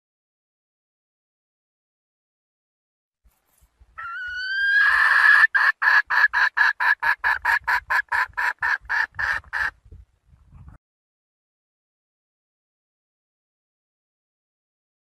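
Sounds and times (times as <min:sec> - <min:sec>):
hen calling: 0:04.0 - 0:09.8
hen clucking rapidly: 0:04.0 - 0:09.9.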